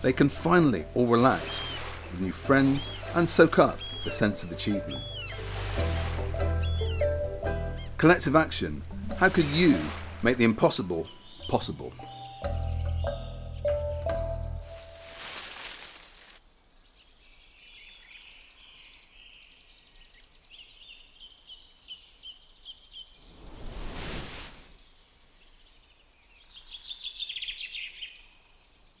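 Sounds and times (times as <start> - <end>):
small birds chirping: 0.0 - 29.0
whooshing noise: 23.2 - 24.7.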